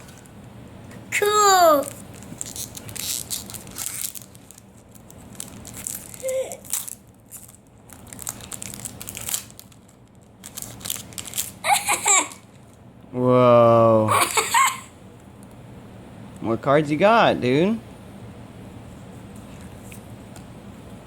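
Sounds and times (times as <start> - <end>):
foil wrapper crinkling: 1.8 - 12.8.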